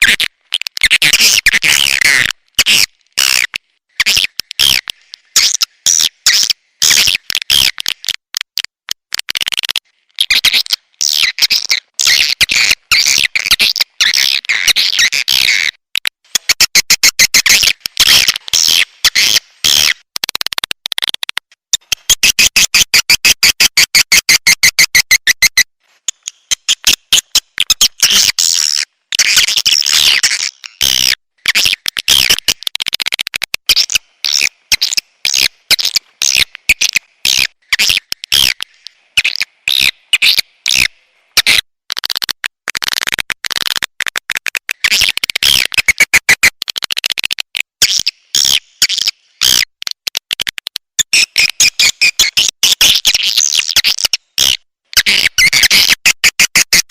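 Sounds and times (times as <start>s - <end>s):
fast run of clicks: 20.1s - 22.0s, 41.9s - 47.7s, 49.5s - 51.6s.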